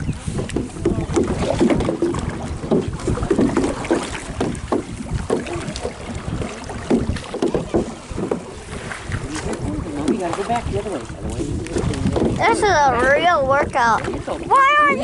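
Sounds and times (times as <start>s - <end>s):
canoe paddles splashing in water: 0.0s - 15.0s
wind buffeting microphone: 0.0s - 15.0s.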